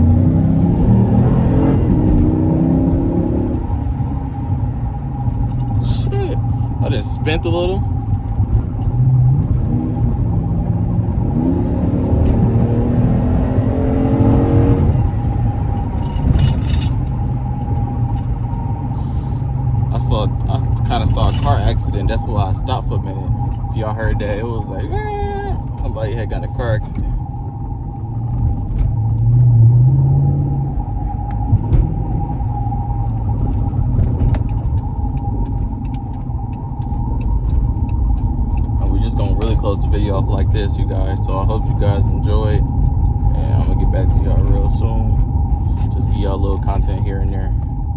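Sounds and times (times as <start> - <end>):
car engine rumble: 0.0 - 47.9.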